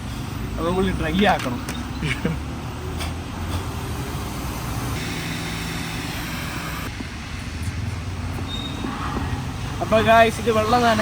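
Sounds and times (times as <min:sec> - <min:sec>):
hissing rush of noise: 0:03.6 - 0:09.8.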